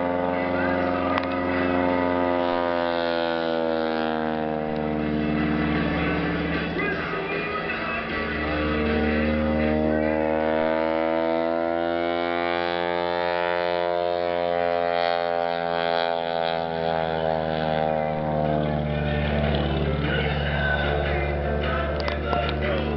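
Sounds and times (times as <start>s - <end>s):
propeller plane engine droning: 0.0s - 22.9s
steady low hum: 0.0s - 22.9s.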